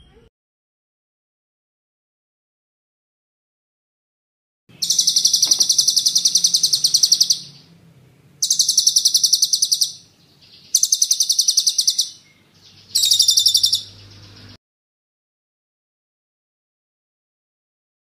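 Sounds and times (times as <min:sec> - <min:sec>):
songbird rolling trill: 0:04.8 - 0:07.8, 0:08.4 - 0:10.0, 0:10.6 - 0:14.4.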